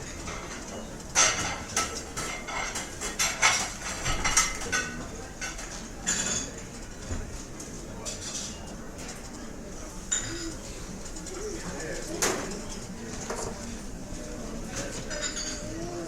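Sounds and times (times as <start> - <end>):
low background murmur: 0.0 - 16.0
cutlery and dishes clinking: 0.1 - 6.8, 10.1 - 13.7, 14.7 - 16.0.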